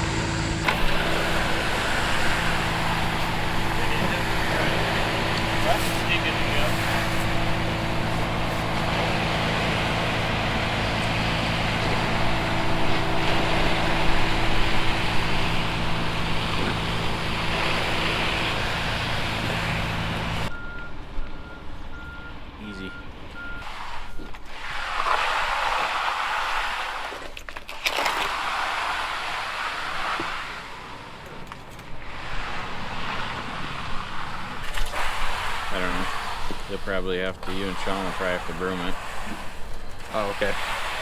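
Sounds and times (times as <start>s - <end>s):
heavy vehicle engine running: 0.0s - 23.6s
hissing bursts: 0.6s - 20.5s
reversing alarm beeping: 20.5s - 23.7s.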